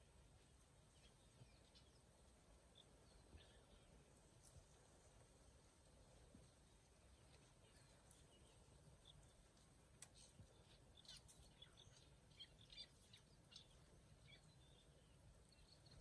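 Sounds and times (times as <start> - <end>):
faint bird chirps: 0.9 - 4.1, 7.0 - 16.0.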